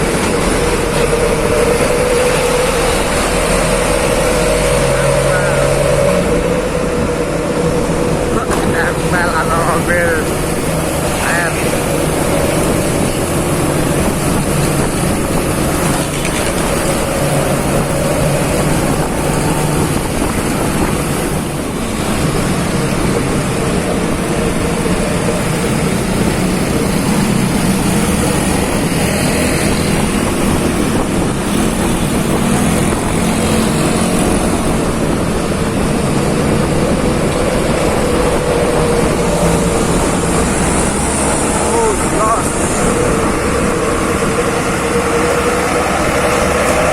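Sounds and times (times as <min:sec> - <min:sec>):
vehicles driving on road: 0:00.0 - 0:46.9
wind on microphone: 0:00.0 - 0:46.9.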